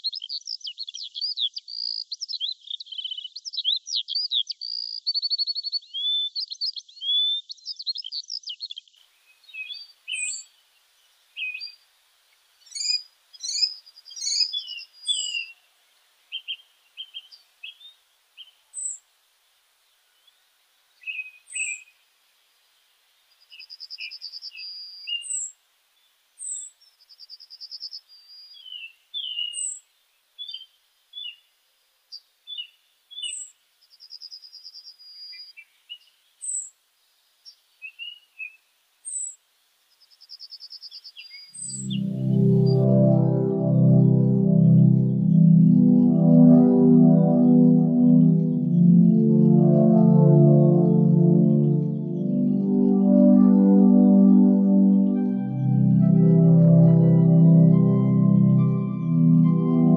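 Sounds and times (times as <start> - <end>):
high thin bird chirps: 9.3 - 10.6, 12.6 - 15.7, 16.3 - 19.0, 21.0 - 22.0, 23.3 - 25.6, 26.4 - 31.4, 32.1 - 36.7, 37.4 - 42.8.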